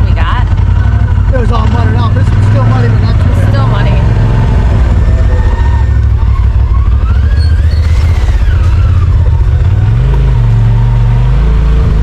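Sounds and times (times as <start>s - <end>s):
drivetrain whine: 0.0s - 12.0s
utility vehicle engine under load: 0.0s - 12.0s.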